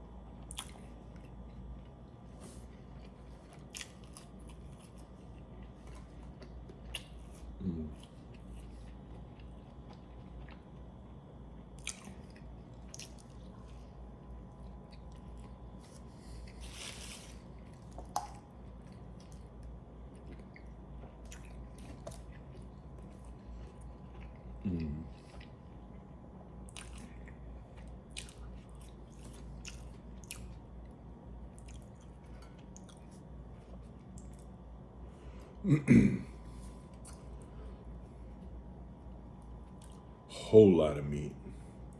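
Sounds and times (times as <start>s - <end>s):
wet chewing and biting: 2.8s - 13.7s, 14.4s - 30.7s.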